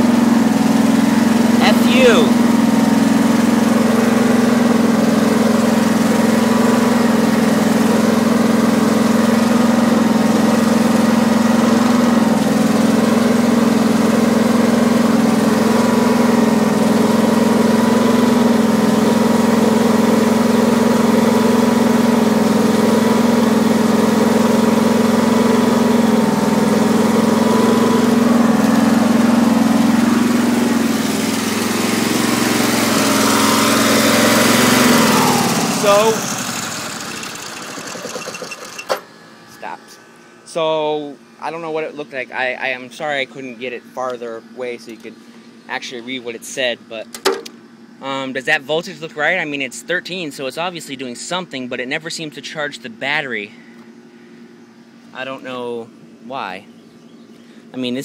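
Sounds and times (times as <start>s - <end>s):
lawn tractor engine running: 0.0s - 49.4s.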